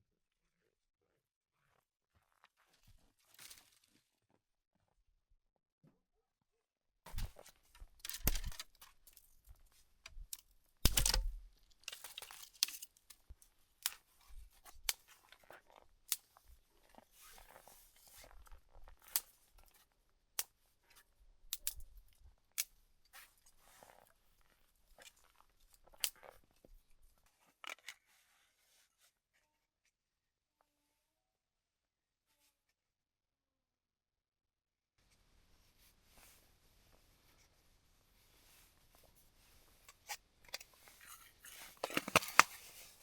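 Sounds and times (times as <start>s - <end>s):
tearing and crinkling handling noises: 2.6s - 4.2s, 7.1s - 9.5s, 10.2s - 13.3s, 40.0s - 43.0s.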